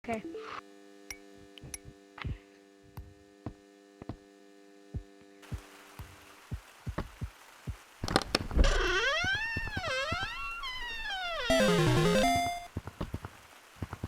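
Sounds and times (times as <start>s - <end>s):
electrical hum: 0.0s - 13.7s
gliding electronic music tone: 11.4s - 12.7s.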